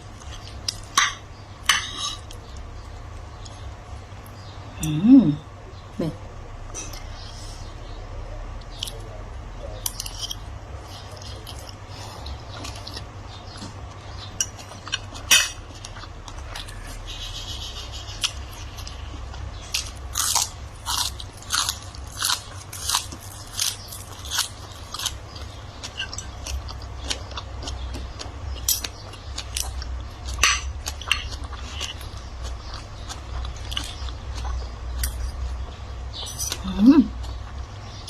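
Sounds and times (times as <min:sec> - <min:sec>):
person chewing crunchy food: 0:09.8 - 0:38.0.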